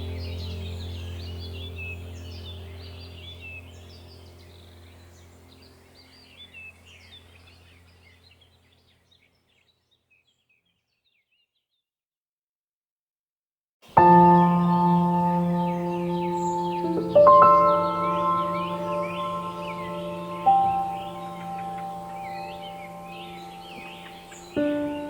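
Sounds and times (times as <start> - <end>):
low steady drone: 0.0 - 8.0, 14.0 - 25.0
small birds chirping: 0.0 - 11.9, 13.9 - 25.0.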